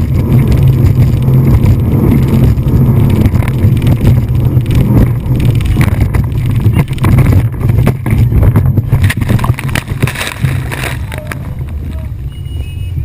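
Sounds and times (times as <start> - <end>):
rough knocks: 0.0 - 11.7
gusty wind noise: 0.0 - 13.0
motorboat running at speed: 0.0 - 13.0.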